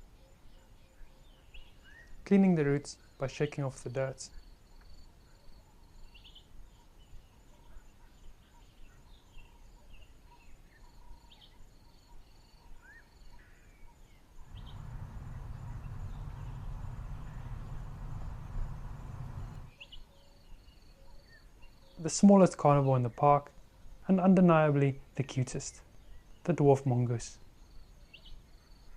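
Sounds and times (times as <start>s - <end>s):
insects trilling: 14.4s - 19.7s
low rumbling noise: 14.5s - 19.7s
bird chirps and calls: 14.5s - 20.0s.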